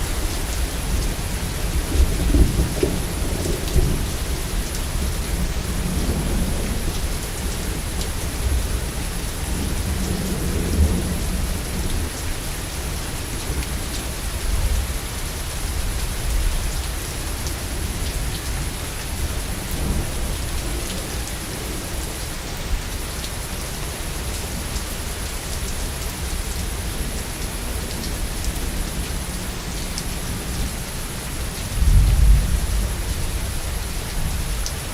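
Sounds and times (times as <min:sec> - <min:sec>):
heavy rain: 0:00.0 - 0:34.9
thunder rumbling low: 0:00.6 - 0:06.9, 0:31.7 - 0:33.8.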